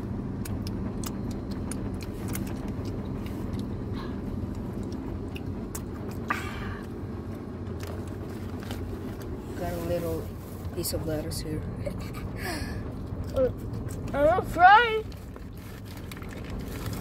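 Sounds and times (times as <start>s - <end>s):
car engine idling: 0.0s - 17.0s
wet chewing and finger-licking: 0.3s - 7.0s.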